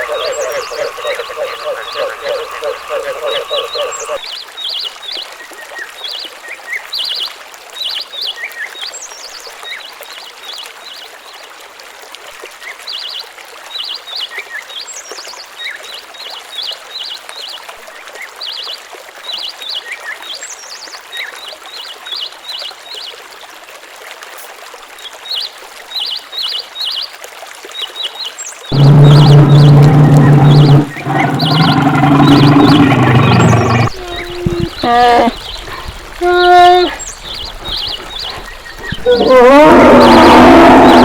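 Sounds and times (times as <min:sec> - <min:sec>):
small birds chirping: 0:00.0 - 0:04.2, 0:28.7 - 0:41.0
running water: 0:00.0 - 0:41.0.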